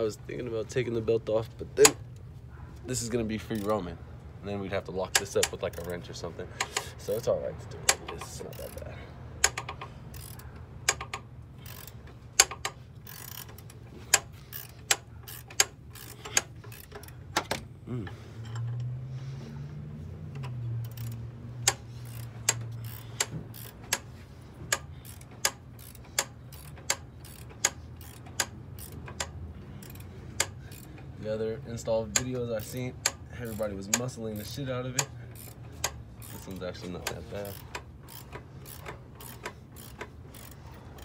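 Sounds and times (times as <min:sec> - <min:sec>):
ratcheting wrench clicking: 0:01.8 - 0:02.3, 0:03.0 - 0:03.9, 0:04.8 - 0:17.7, 0:18.3 - 0:19.0, 0:20.3 - 0:41.0.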